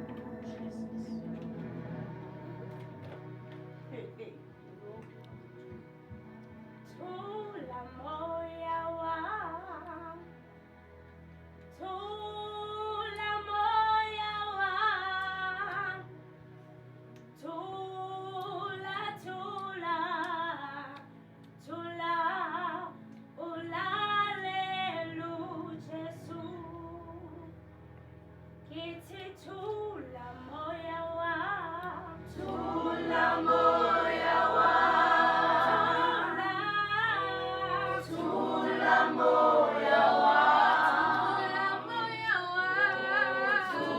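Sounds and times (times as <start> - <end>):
low sustained accompaniment: 0.0 - 43.9
youth choir singing: 32.3 - 43.9.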